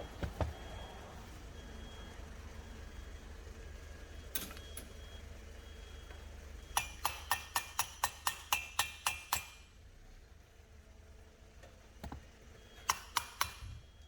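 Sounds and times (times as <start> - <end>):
low steady hum: 0.0 - 14.0
sharp metal-on-metal taps: 6.7 - 9.7, 12.8 - 13.8.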